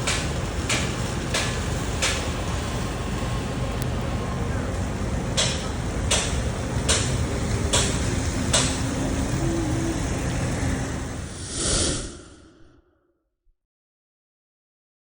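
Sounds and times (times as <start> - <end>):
heavy rain: 0.0 - 11.4
vehicle engine rumbling: 0.0 - 12.8.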